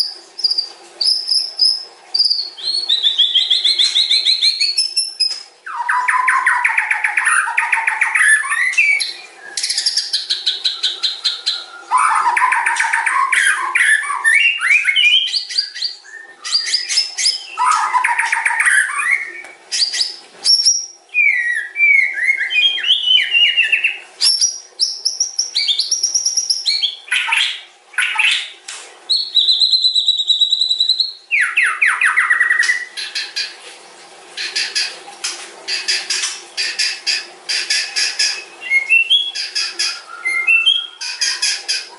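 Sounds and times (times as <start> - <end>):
songbird trills and whistles: 0.0 - 28.4, 37.5 - 41.9.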